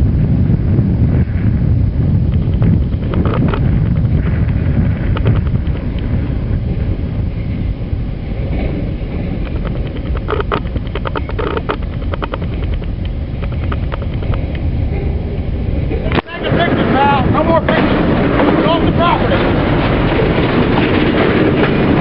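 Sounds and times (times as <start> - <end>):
train low rumble: 0.0 - 22.0
wind buffeting microphone: 0.0 - 22.0
metallic clicks and clanks of wheels: 5.0 - 22.0.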